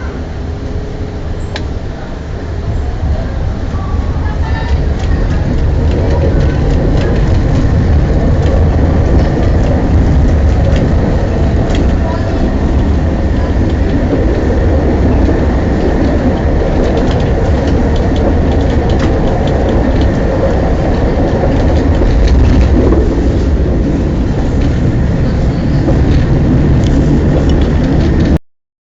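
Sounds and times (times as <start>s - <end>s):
tram wheels rumbling on rails: 0.0s - 28.4s
sharp clicks and knocks: 4.7s - 23.4s.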